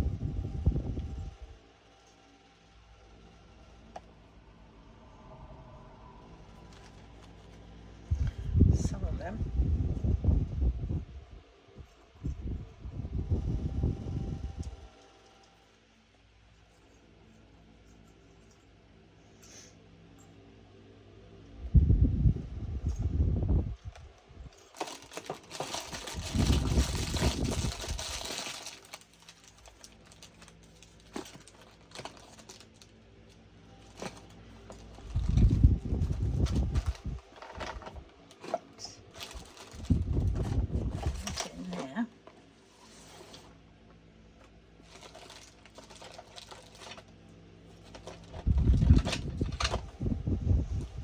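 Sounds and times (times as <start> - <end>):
low steady hum: 0.0 - 51.0
rustling of plastic bags: 6.4 - 8.5, 24.5 - 43.6, 44.6 - 51.0
low thumps and rumbling: 21.6 - 28.6, 35.0 - 38.1, 39.2 - 41.4, 48.2 - 51.0
plastic packaging crinkling: 24.5 - 33.0, 33.8 - 41.7, 44.8 - 50.0.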